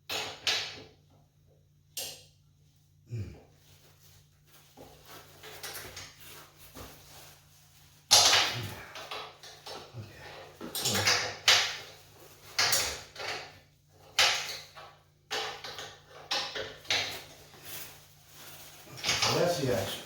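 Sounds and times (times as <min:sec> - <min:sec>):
wrenches and bolts clanking: 0:08.1 - 0:11.9, 0:19.0 - 0:20.0.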